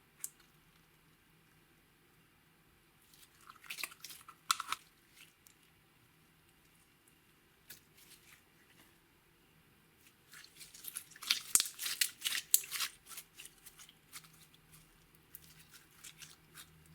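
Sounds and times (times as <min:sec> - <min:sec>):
slime squishing with sticky crackles: 0:03.0 - 0:05.6, 0:10.0 - 0:16.9.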